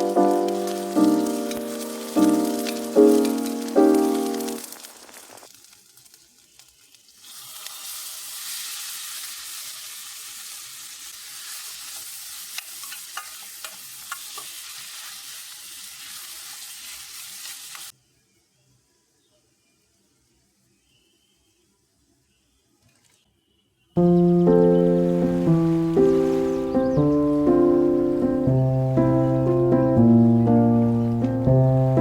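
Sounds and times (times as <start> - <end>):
background music: 0.0 - 4.7, 24.0 - 32.0
food sizzling in a pan: 0.0 - 18.0.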